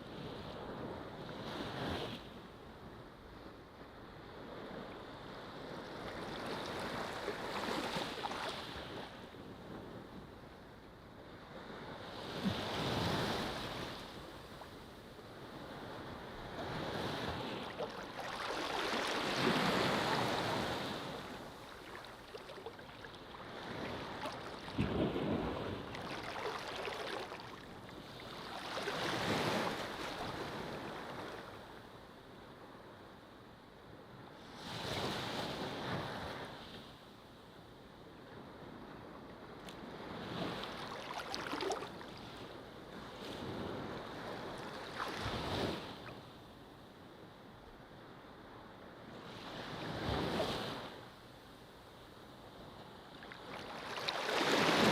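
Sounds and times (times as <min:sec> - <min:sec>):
ocean waves breaking on beach: 0:04.4 - 0:09.4, 0:11.4 - 0:31.7, 0:39.8 - 0:46.3, 0:53.1 - 0:54.9.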